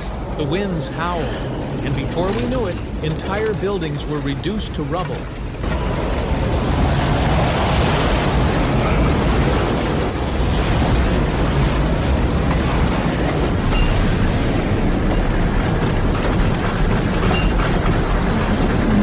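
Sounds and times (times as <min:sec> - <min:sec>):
strong wind buffeting microphone: 0:05.2 - 0:19.0.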